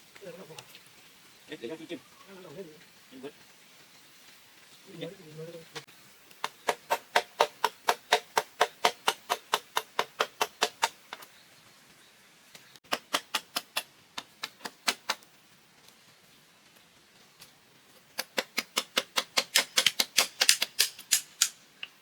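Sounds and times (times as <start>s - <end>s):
rapid chopping with a blade: 6.4s - 11.0s, 12.9s - 15.2s, 18.2s - 21.6s.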